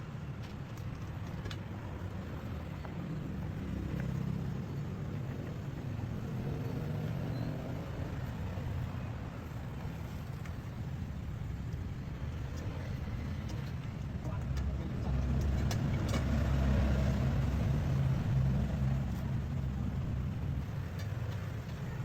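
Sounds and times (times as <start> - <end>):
road traffic rumble: 0.0 - 22.0
vehicle passing by: 15.0 - 20.5.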